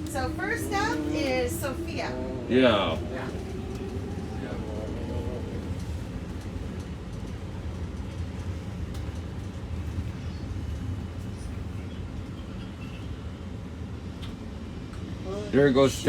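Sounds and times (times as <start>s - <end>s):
bus cabin low rumble: 0.0s - 16.0s
light rattles and ticks: 5.7s - 11.4s.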